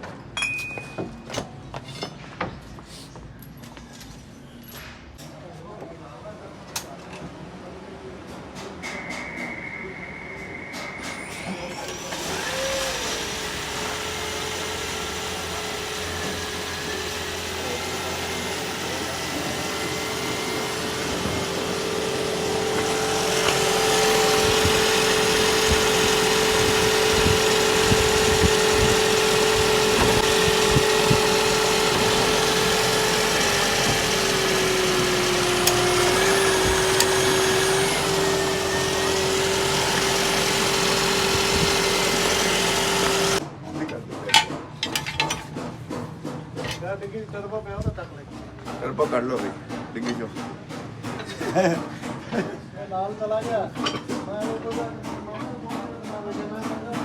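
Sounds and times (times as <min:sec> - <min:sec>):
small motor whining: 0:11.5 - 0:43.4.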